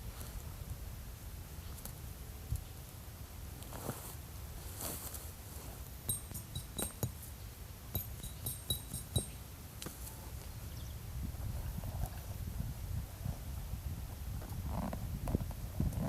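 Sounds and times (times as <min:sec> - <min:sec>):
metallic clinks: 0:06.1 - 0:07.3, 0:07.9 - 0:09.4.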